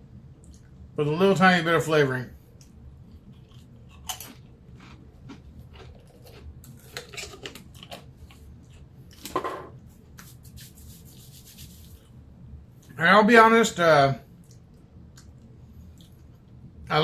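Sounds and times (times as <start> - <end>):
chewing potato chip crunching: 3.1 - 9.3.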